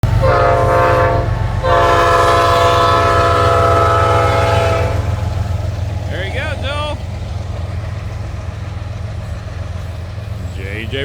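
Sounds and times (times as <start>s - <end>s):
train horn blasts: 0.0s - 5.4s
low rumble of passing train: 0.0s - 11.0s.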